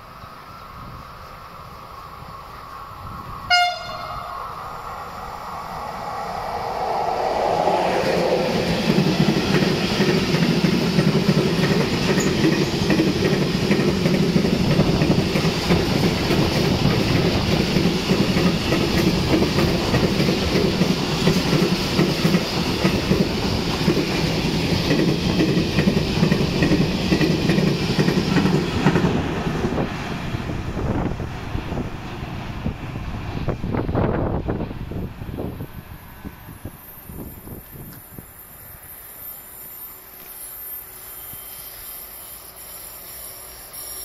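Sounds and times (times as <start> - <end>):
electric locomotive passing: 0.0 - 44.0
wheels clattering on rails: 7.9 - 29.2.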